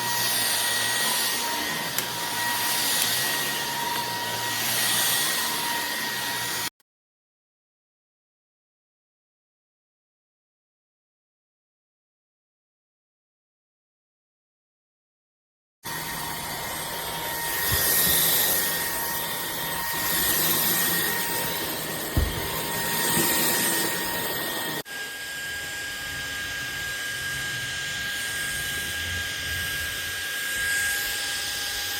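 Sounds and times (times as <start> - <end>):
stick vacuum motor whine: 0.0 - 6.7, 15.9 - 31.9.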